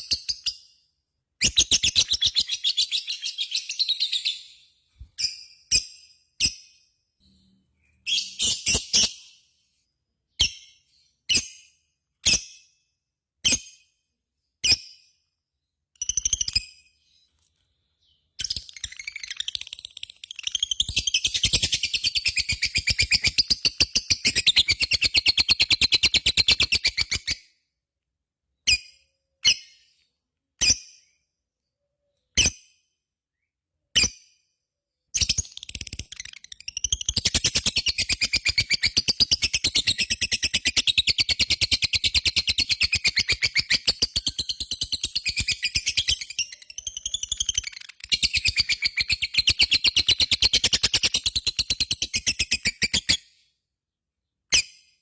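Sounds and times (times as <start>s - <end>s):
bird chirping and chattering: 16.0s - 17.1s, 18.0s - 27.4s, 35.1s - 53.2s.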